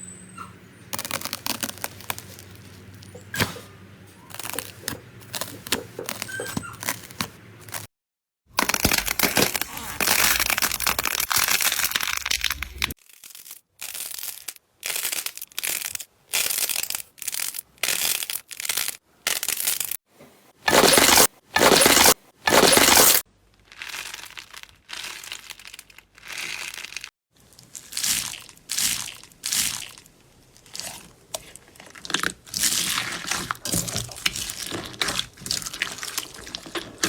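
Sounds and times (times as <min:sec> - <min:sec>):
slime crackling when squeezed: 0:01.0 - 0:02.9, 0:04.2 - 0:07.9, 0:08.6 - 0:19.9.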